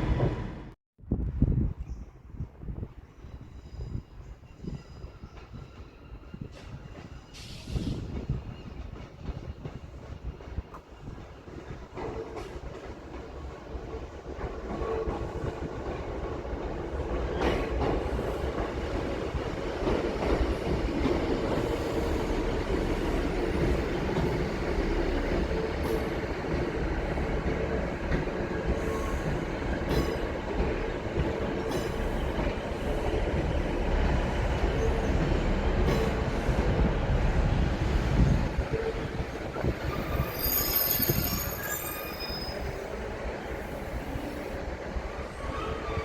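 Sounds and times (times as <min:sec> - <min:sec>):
train wheels rumbling on rails: 0:01.5 - 0:46.0
faint squealing tone: 0:39.9 - 0:42.8.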